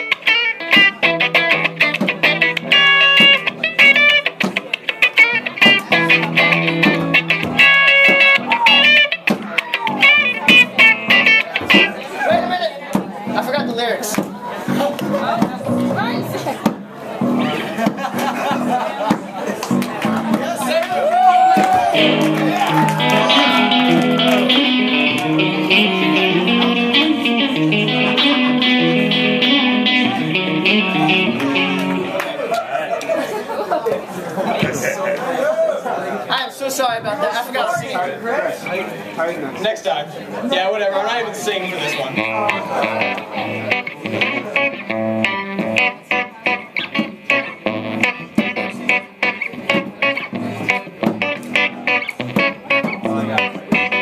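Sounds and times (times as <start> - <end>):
live band instrumental led by guitar: 0.0 - 35.4, 36.7 - 54.0.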